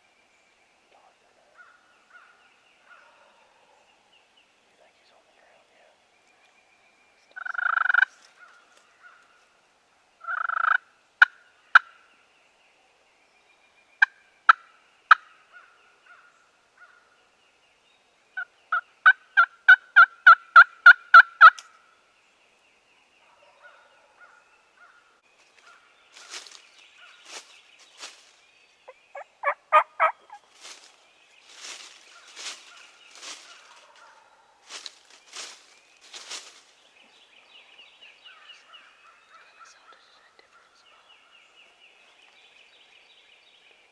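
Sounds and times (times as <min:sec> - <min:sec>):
wild turkey gobbling: 0:07.4 - 0:08.1, 0:10.2 - 0:11.9, 0:18.4 - 0:21.6, 0:28.9 - 0:30.5
wild turkey yelping: 0:18.4 - 0:21.6, 0:28.9 - 0:30.5.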